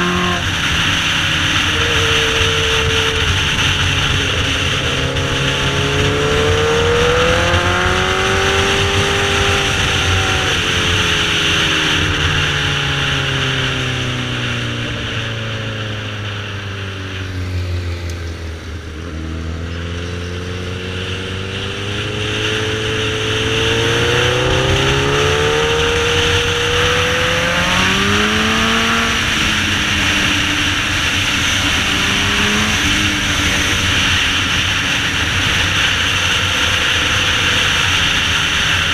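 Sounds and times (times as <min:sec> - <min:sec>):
wind rushing: 0:00.0 - 0:11.8
motorcycle engine: 0:00.0 - 0:38.9.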